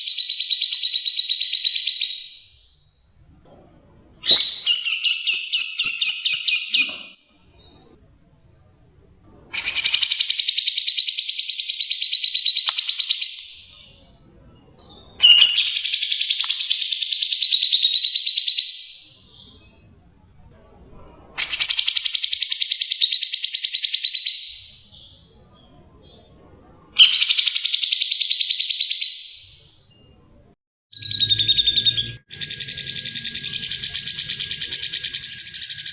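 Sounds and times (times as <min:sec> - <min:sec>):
songbird pulsing trills: 0:31.0 - 0:35.9.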